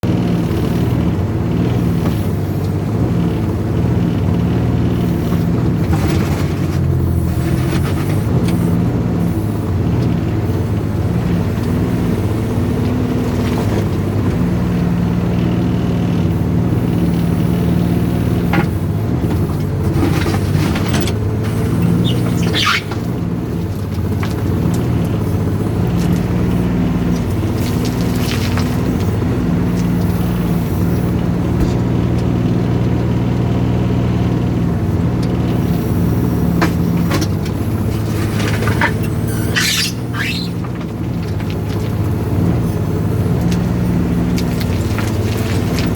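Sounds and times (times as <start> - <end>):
excavator diesel engine: 0.0 - 45.9
knocks and scrapes: 5.2 - 8.6, 18.4 - 32.0, 36.4 - 42.8, 43.4 - 45.9
rising squeal: 21.5 - 23.2, 39.0 - 40.7.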